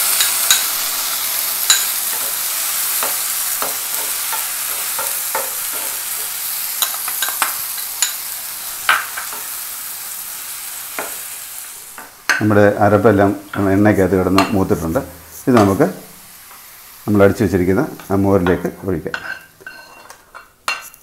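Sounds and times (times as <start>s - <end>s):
paste sizzling in oil: 0.0s - 21.0s
spoon knocking against pan: 1.7s - 2.3s, 3.0s - 6.0s.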